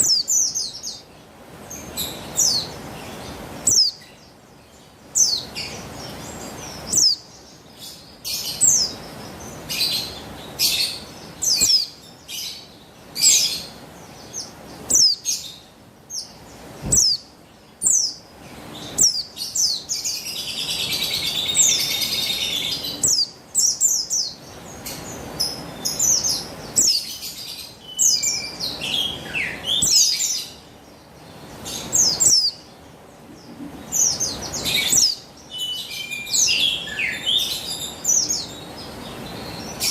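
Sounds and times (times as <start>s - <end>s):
bird chirping and twittering: 0.0s - 39.9s.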